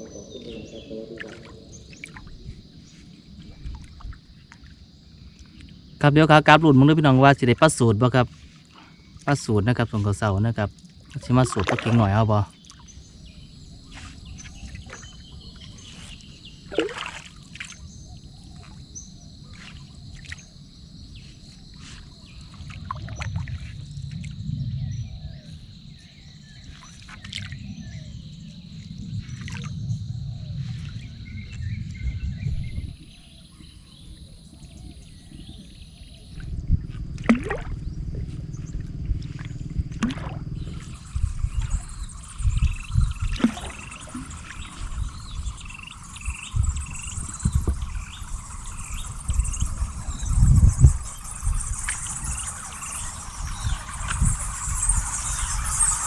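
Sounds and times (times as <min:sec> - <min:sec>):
water sloshing: 0:00.0 - 0:05.7, 0:11.0 - 0:12.9, 0:13.8 - 0:17.9, 0:36.4 - 0:56.0
high-pitched insect call: 0:00.0 - 0:56.0.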